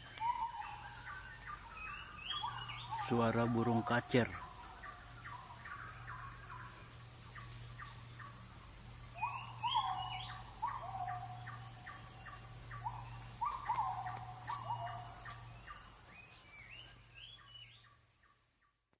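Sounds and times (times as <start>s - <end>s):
bird singing whistled notes: 0.0s - 3.8s, 9.1s - 18.4s.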